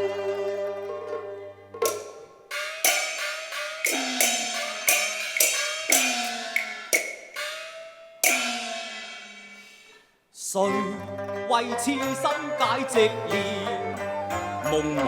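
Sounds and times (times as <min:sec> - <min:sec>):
gongs struck rhythmically: 0:01.8 - 0:10.0.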